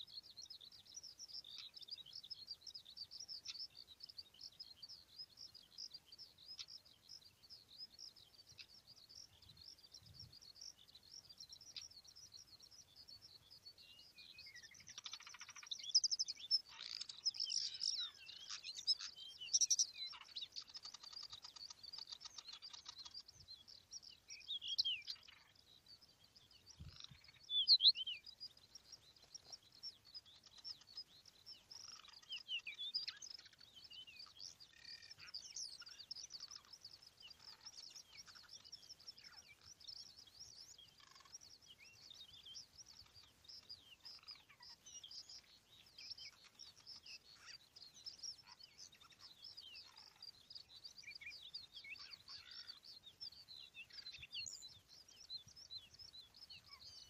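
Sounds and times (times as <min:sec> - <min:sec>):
birds chirping and singing: 0:00.0 - 0:57.0
whistled bird notes: 0:26.4 - 0:57.0.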